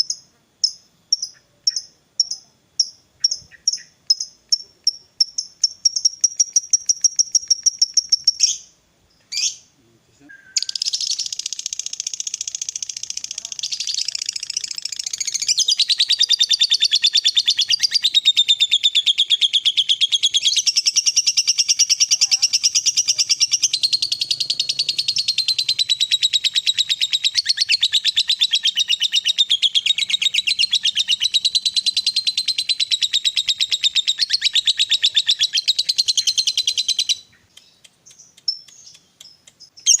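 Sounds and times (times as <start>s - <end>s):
lovebird rattling chatter: 3.2s - 8.6s, 10.6s - 15.6s.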